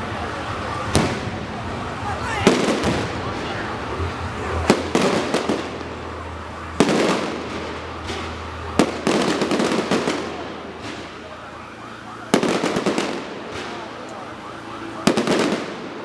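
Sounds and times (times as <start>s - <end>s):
fireworks bang and crackling: 0.0s - 16.0s.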